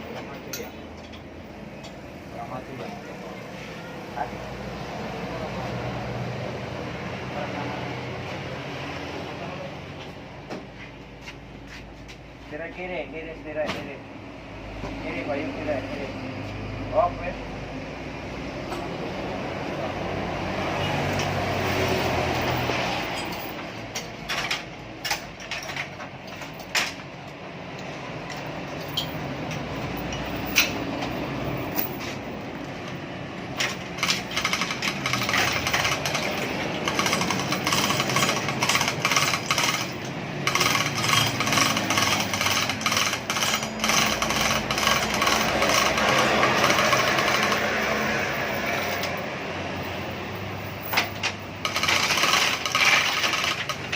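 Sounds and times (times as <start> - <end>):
sharp metal clicks and knocks: 22.6 - 49.2, 50.7 - 53.9
mechanical rattle: 33.5 - 48.0, 50.8 - 53.9.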